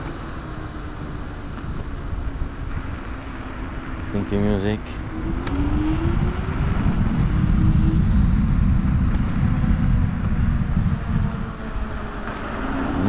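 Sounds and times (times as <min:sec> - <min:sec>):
tyre road rumble: 0:00.0 - 0:13.0
wind buffeting microphone: 0:00.0 - 0:13.0.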